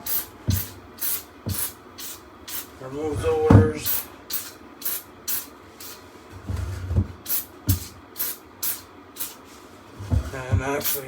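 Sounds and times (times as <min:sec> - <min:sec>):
spray bottle squirting: 0:00.0 - 0:02.7, 0:03.9 - 0:06.0, 0:07.2 - 0:09.4, 0:10.8 - 0:11.0
dull knocks: 0:03.2 - 0:03.9.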